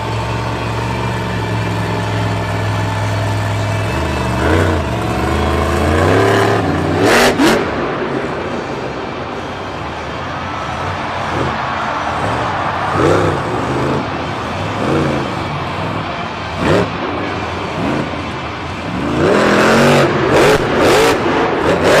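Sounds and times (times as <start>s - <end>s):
heavy vehicle engine revving: 0.0s - 22.0s.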